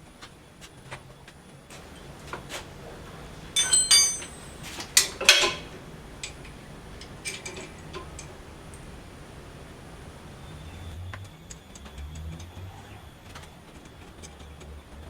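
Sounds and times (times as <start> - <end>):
metal tools clanking: 1.7 - 11.0
metal clatter: 1.8 - 10.9
ringing metal knocks: 1.8 - 10.9.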